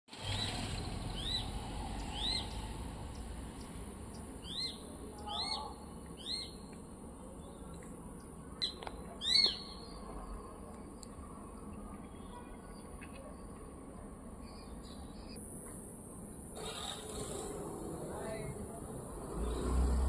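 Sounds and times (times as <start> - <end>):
low steady rumble: 0.1 - 12.2.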